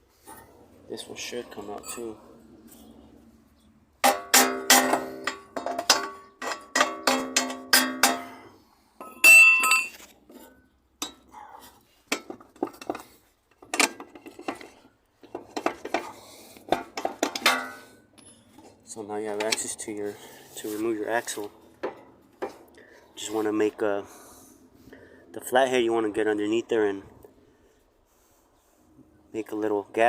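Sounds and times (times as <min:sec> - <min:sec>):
metal tools clanking on steel: 0:01.2 - 0:02.2, 0:04.0 - 0:22.7
high-ringing metal clang: 0:09.0 - 0:10.0
light metal clinks: 0:09.0 - 0:10.0.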